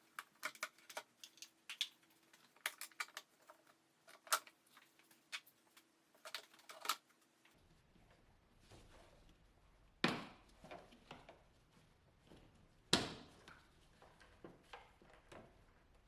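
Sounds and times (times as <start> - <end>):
light clicks and clatter: 0.0 - 8.2.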